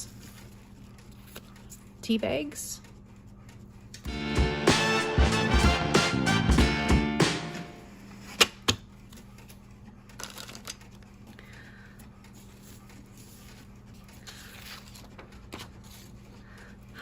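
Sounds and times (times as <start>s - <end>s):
paper rustling: 12.4s - 16.4s.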